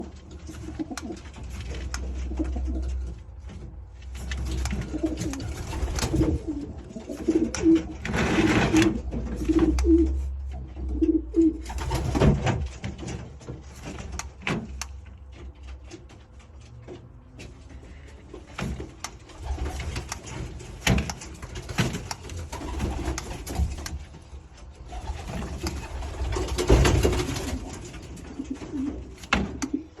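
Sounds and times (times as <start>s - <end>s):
knocks and rustling: 0.0s - 30.0s
pigeon cooing: 9.4s - 11.6s.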